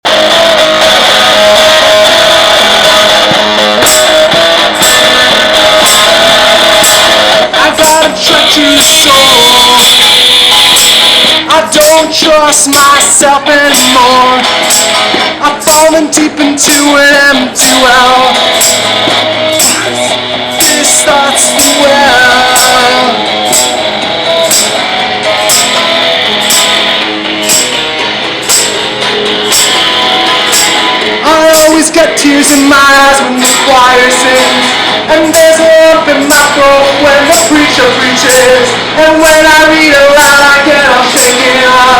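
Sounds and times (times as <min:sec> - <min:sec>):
distorted electric guitar: 0:00.0 - 0:41.9
tambourine struck on the beat: 0:00.1 - 0:12.0, 0:13.7 - 0:15.9, 0:17.6 - 0:41.9
tambourine shakes: 0:33.3 - 0:38.5.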